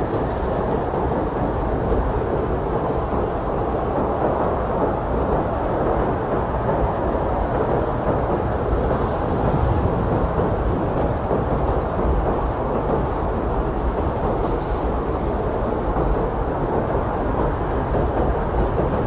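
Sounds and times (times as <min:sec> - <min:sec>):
blizzard wind blowing: 0:00.0 - 0:19.0.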